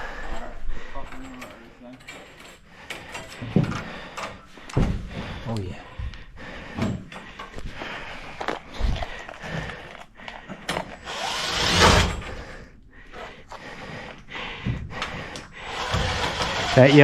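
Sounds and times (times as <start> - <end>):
hand tool grinding wood: 11.0 - 12.4, 15.6 - 17.0.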